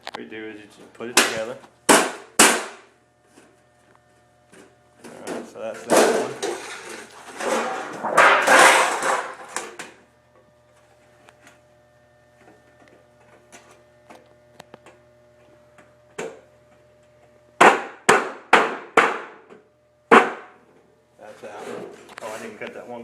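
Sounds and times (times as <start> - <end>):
sheet metal scraping and rattling: 6.0 - 9.6.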